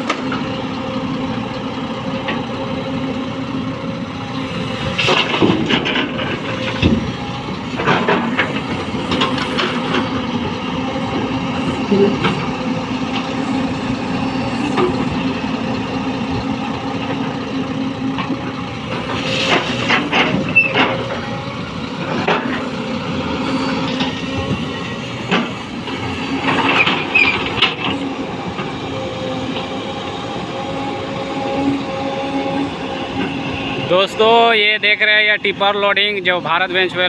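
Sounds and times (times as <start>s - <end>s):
excavator diesel engine humming: 0.0s - 37.0s
metallic clanks and rattles: 5.0s - 7.1s, 7.7s - 10.2s, 18.2s - 21.3s, 23.9s - 28.0s.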